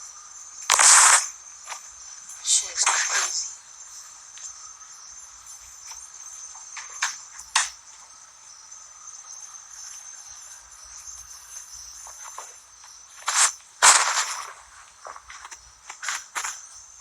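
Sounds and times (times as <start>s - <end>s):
high-pitched insect chirring: 0.0s - 17.0s
sharp clicks: 0.6s - 1.8s, 13.2s - 16.6s.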